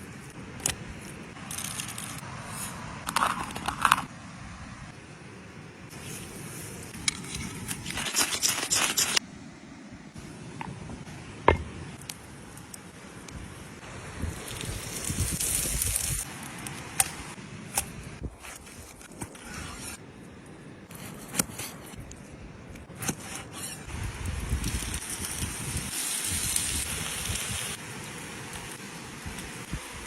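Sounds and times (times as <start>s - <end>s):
fire hissing and crackling: 5.9s - 9.2s, 12.0s - 20.0s, 23.0s - 30.0s.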